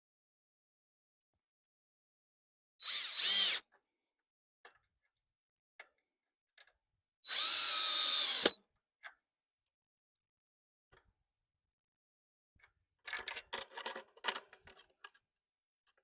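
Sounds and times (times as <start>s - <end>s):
power drill driving a screw: 2.8s - 3.6s, 7.3s - 8.6s.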